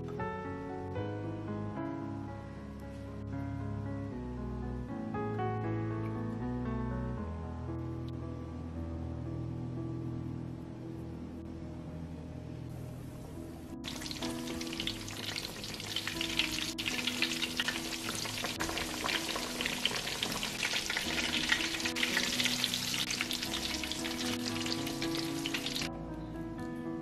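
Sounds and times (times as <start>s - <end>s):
soft background music: 0.0s - 27.0s
cutlets deep-frying in hot oil: 13.8s - 25.9s.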